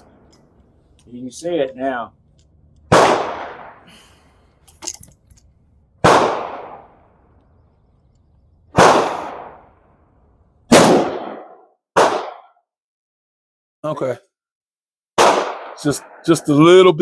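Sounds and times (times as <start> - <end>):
gunshots: 2.9 - 3.9, 6.0 - 7.0, 8.7 - 9.7, 10.7 - 12.5, 15.2 - 16.6
faint clicks: 7.4 - 8.4.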